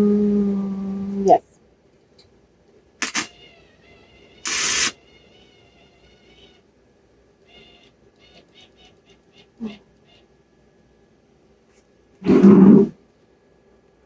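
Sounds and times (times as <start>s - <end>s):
welder arc crackling: 3.0s - 3.3s, 4.5s - 5.0s
welding sizzle: 3.0s - 3.3s, 4.5s - 5.0s.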